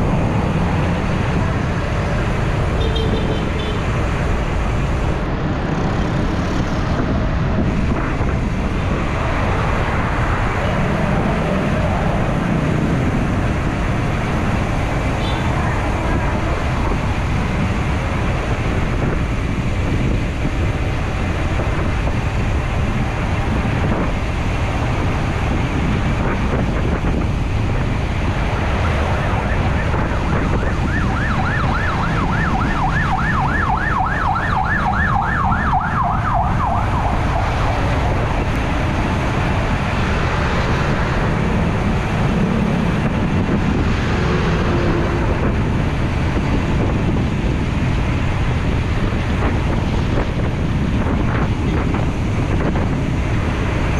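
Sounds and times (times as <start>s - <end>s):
road and wind noise: 0.0s - 53.9s
emergency siren yelping: 28.8s - 38.5s.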